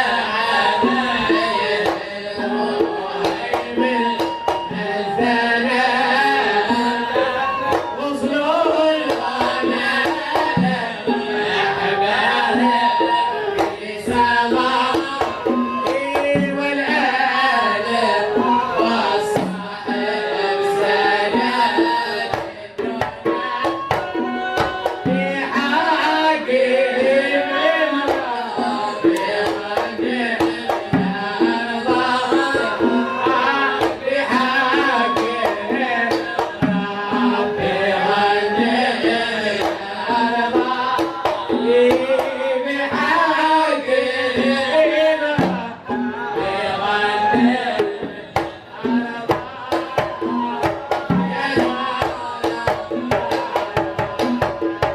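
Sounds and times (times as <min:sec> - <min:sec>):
hand drum beats: 0:00.0 - 0:54.9
voices chanting a religious song: 0:00.0 - 0:54.9.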